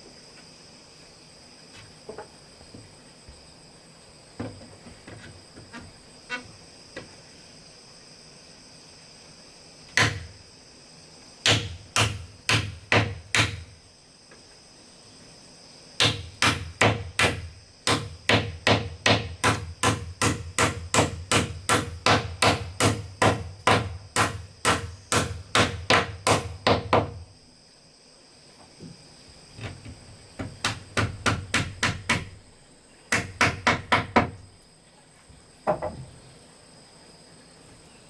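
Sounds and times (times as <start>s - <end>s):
insects chirring: 0.0s - 38.0s
hand tool striking wood: 10.0s - 10.3s, 11.4s - 13.7s, 16.0s - 27.2s, 30.4s - 32.4s, 33.1s - 34.4s.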